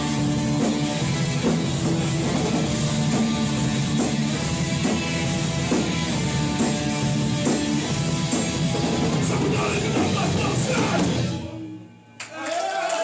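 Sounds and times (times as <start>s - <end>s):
hardcore band playing live: 0.0s - 12.0s.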